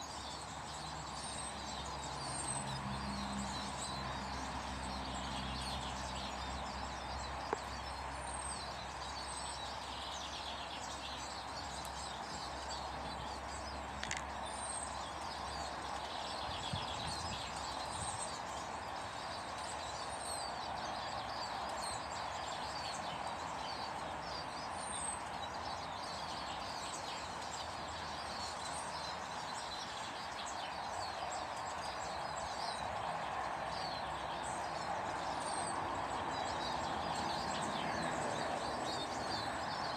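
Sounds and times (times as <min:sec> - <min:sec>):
small birds chirping: 0:00.0 - 0:39.9
steady background noise: 0:03.7 - 0:16.4.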